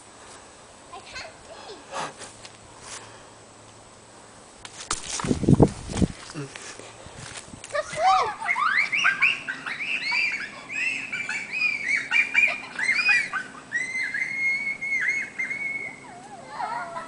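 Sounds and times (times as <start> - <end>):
birds chirping: 8.1 - 17.0
whistled bird note: 13.0 - 16.1.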